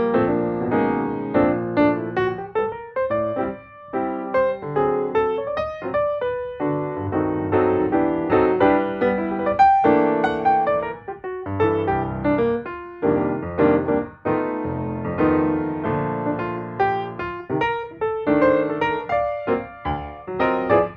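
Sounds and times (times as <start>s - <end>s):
piano music: 0.0s - 20.9s.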